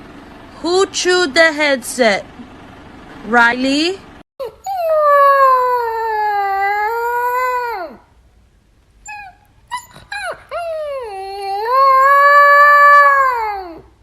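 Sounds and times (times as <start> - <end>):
dog howling: 4.4 - 8.1, 9.1 - 14.0
dog yipping: 9.0 - 13.8.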